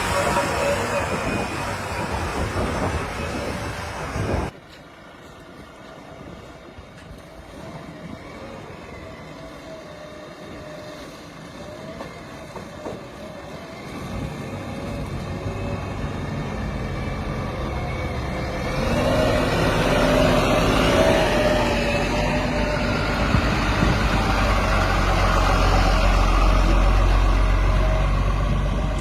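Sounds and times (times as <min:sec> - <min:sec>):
diesel engine running: 0:07.3 - 0:29.0.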